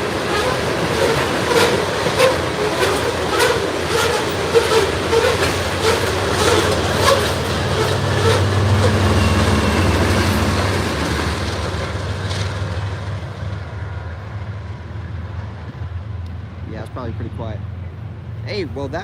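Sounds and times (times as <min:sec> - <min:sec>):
train wheels clicking over rail joints: 0:00.0 - 0:13.8
freight train rumbling: 0:00.0 - 0:19.0.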